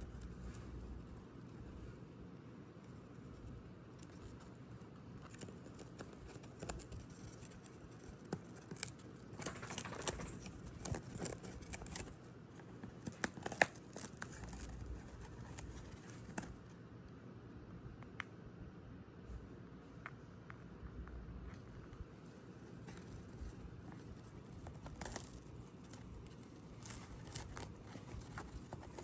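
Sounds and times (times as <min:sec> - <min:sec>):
parrot beak tearing cardboard: 0:05.2 - 0:16.7, 0:22.8 - 0:29.0.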